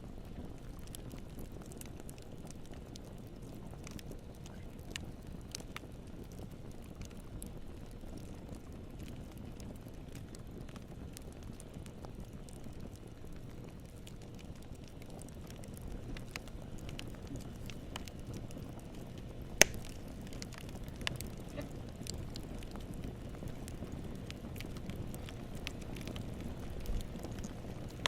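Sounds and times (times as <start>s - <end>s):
campfire rumble and crackles: 0.0s - 28.0s
sharp fire pop: 19.6s - 20.0s.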